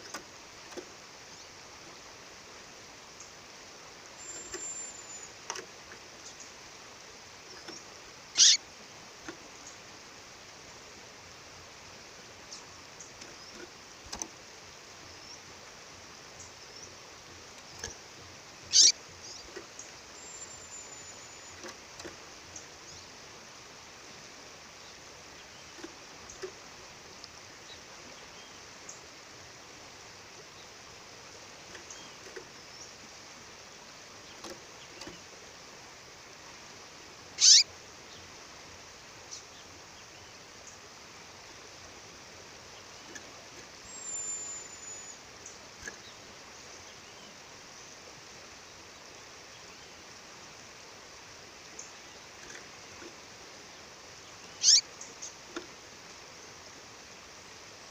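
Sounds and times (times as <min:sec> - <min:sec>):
bird chirping: 0:04.2 - 0:05.6, 0:07.4 - 0:08.6, 0:18.6 - 0:23.1, 0:37.4 - 0:38.3, 0:42.7 - 0:47.9, 0:54.2 - 0:55.4.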